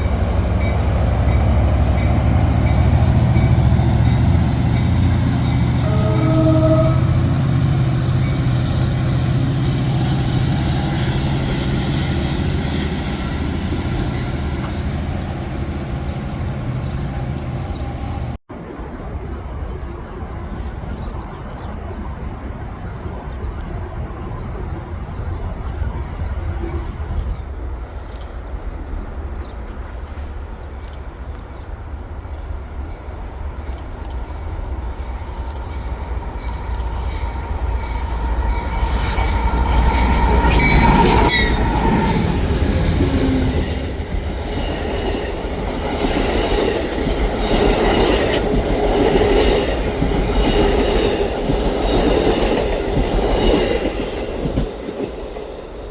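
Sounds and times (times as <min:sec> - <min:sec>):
train rumbling past: 0:00.0 - 0:55.9
wheel squeal: 0:33.6 - 0:43.3.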